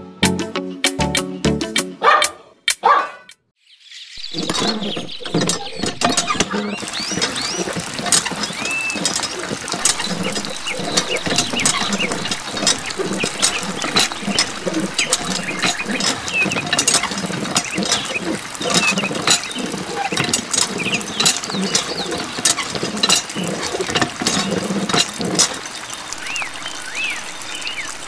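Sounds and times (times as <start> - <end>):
water splashing and bubbling: 4.2 - 28.0
pump lever clicking and squeaking: 4.3 - 25.6.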